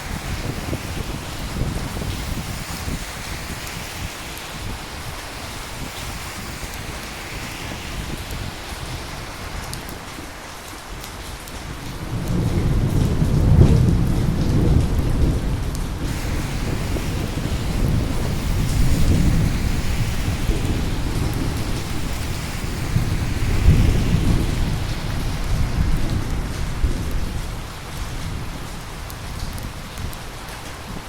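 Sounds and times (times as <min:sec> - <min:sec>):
steady rain falling: 0:00.0 - 0:31.0
rolling thunder rumble: 0:11.5 - 0:30.2.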